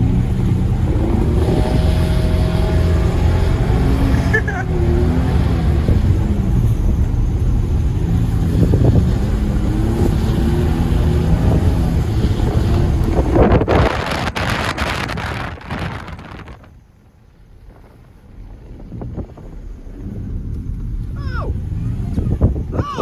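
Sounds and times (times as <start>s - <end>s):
pickup engine revving: 0.0s - 16.7s, 18.6s - 23.0s
rough rushing noise with crackles: 0.0s - 23.0s.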